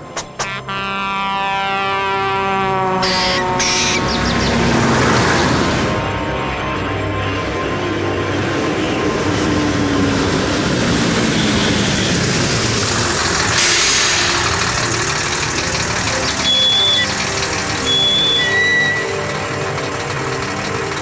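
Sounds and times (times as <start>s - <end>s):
cartoon race car engine: 2.9s - 6.2s, 9.0s - 21.0s
sudden rushing noise: 3.0s - 6.3s
short high tones: 15.5s - 20.0s.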